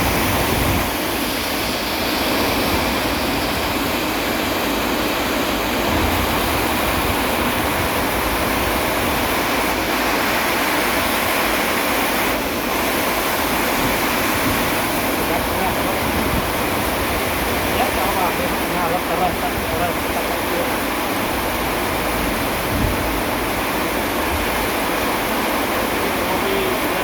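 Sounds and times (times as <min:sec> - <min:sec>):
heavy rain: 0:00.0 - 0:27.0.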